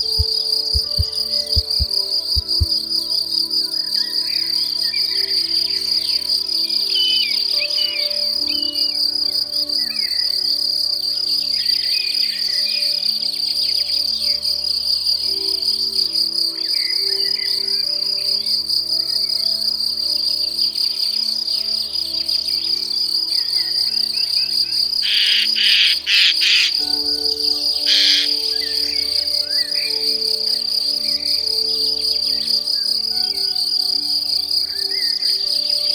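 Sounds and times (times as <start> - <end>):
bird chirps: 0.0 - 2.8
crickets trilling: 0.0 - 35.9.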